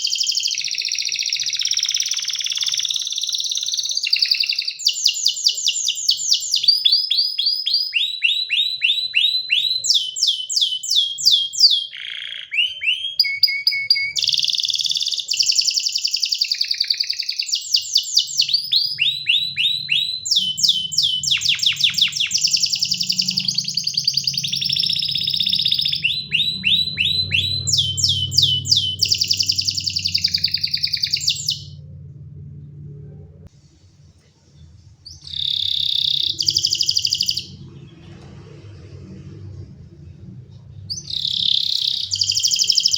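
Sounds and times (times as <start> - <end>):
canary singing trills: 0.0 - 32.0, 35.1 - 38.1, 40.7 - 42.9
faint low hum: 13.9 - 42.9.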